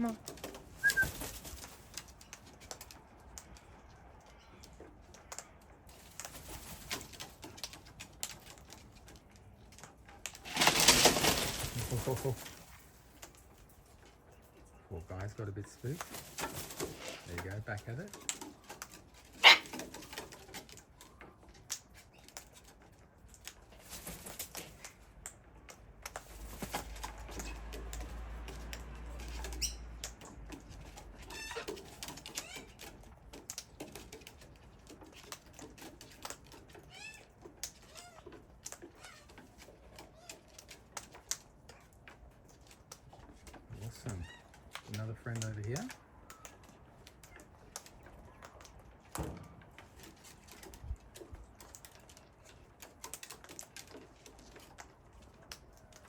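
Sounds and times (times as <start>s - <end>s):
wings flapping: 0.0s - 3.5s, 5.1s - 13.4s, 15.2s - 22.7s, 23.3s - 25.4s, 26.0s - 41.9s
beaks pecking and cracking corn: 0.0s - 56.0s
birds squawking: 19.4s - 19.8s.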